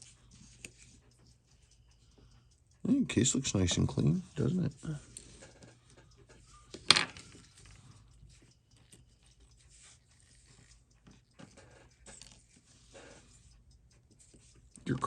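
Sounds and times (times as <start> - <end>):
faint clicks and rustles: 3.4 - 15.0.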